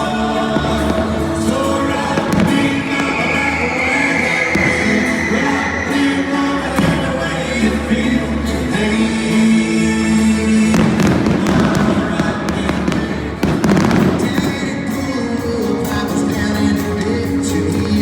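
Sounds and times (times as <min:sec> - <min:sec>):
fireworks booming: 0:00.0 - 0:09.1, 0:09.7 - 0:18.0
loud music: 0:00.0 - 0:18.0
fireworks crackling pops: 0:00.5 - 0:07.2, 0:10.8 - 0:18.0.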